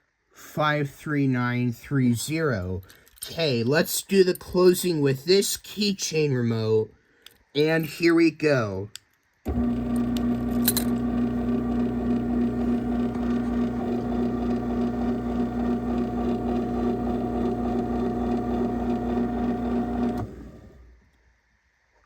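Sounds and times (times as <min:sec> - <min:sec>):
garage door opener motor hum: 0:09.5 - 0:21.0.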